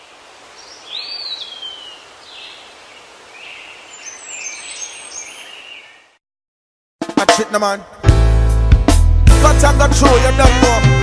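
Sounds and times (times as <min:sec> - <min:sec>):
outdoor hiss: 0:00.0 - 0:04.1
birds chirping: 0:00.0 - 0:06.2.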